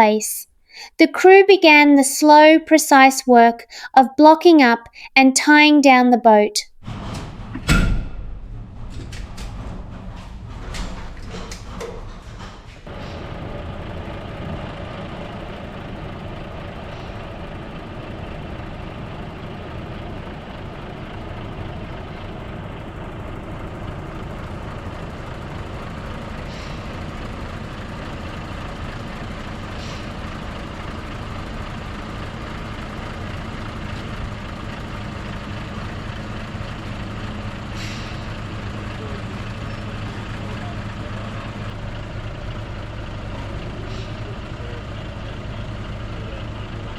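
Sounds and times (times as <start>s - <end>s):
truck diesel engine idling: 12.8s - 46.9s
air release hisses: 37.7s - 38.3s.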